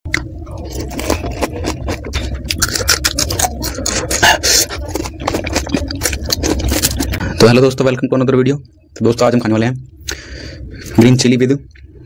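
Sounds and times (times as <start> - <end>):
crunching and chewing crisp shells: 0.1 - 7.3.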